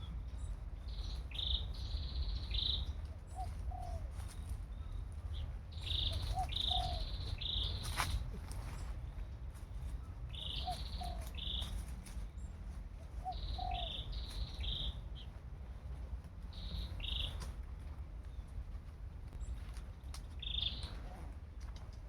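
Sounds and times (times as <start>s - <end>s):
bird chirping: 0.0s - 8.9s, 10.3s - 12.6s, 13.2s - 15.3s, 16.5s - 17.5s, 20.4s - 21.0s
steady low rumble: 0.0s - 22.0s.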